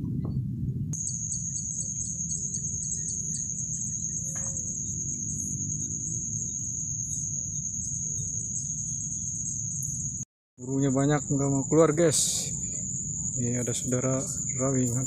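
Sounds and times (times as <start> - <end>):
wind rumble on microphone: 0.0 - 10.2
insect trilling: 1.0 - 15.0.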